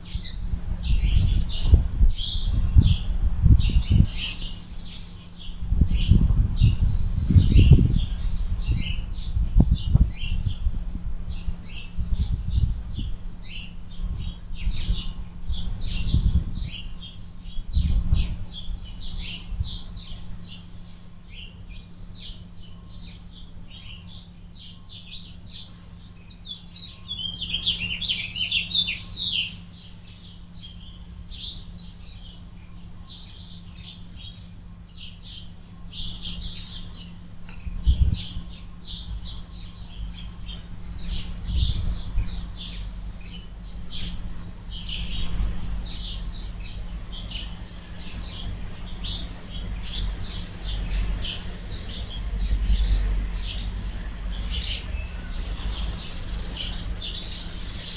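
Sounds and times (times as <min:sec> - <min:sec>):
low rumbles: 0:00.0 - 0:19.8
small birds chirping: 0:00.0 - 0:57.9
steady low hum: 0:00.0 - 0:57.9.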